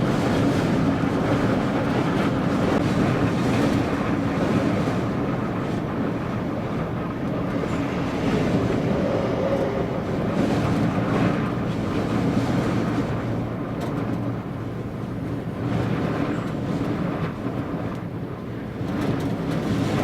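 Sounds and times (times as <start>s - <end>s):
vehicle road and engine noise: 0.0s - 20.0s
wind buffeting: 0.0s - 20.0s.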